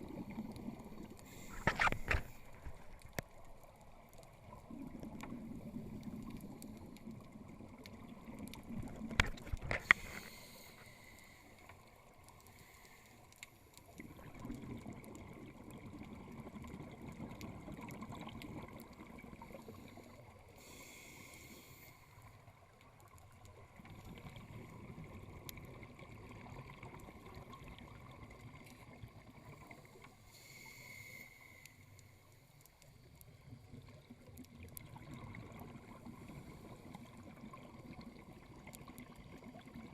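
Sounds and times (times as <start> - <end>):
exhaled bubbles gurgling: 0.0 - 10.2, 13.9 - 20.5, 22.5 - 30.1, 33.3 - 39.9.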